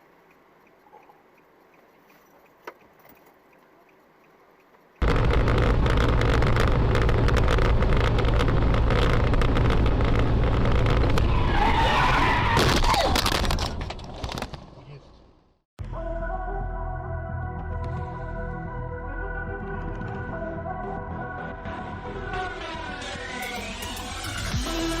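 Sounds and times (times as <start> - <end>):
car and road noise: 0.0 - 16.1
tyre screech: 11.2 - 13.7.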